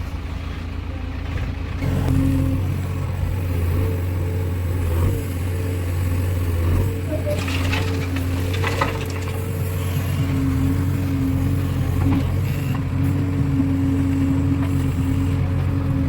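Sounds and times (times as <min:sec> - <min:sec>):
heavy diesel engine running: 0:00.0 - 0:16.0
rattling and scraping: 0:06.1 - 0:10.9.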